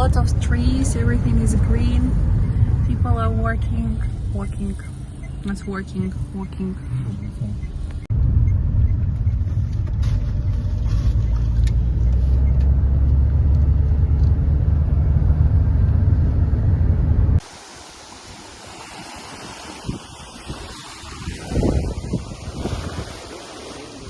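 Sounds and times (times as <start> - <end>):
car rumbling in motion: 0.0 - 17.5
wind noise outdoors: 0.0 - 24.0.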